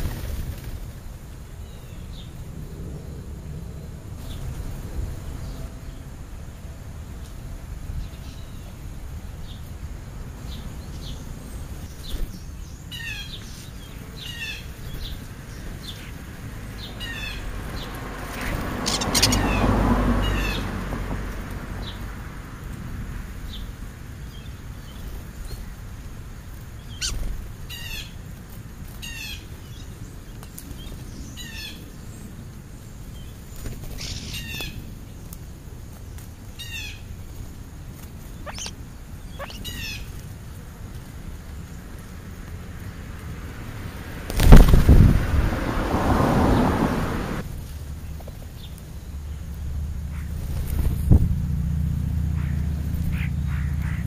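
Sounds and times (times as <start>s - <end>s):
small birds chirping: 7.1s - 22.2s, 23.4s - 45.1s, 52.1s - 54.0s.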